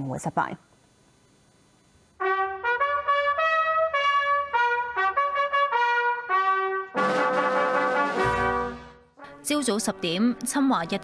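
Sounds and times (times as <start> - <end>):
brass band playing slow melody: 2.2 - 9.4.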